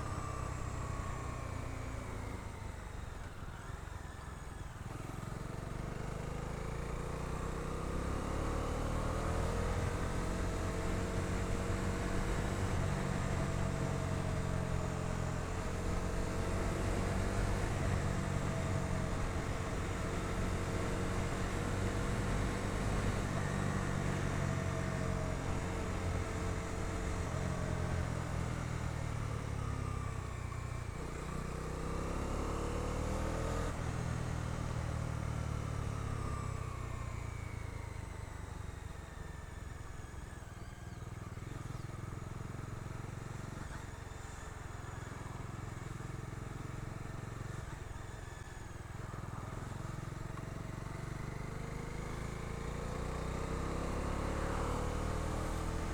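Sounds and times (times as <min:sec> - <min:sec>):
motorcycle engine revving: 0:49.3 - 0:55.9.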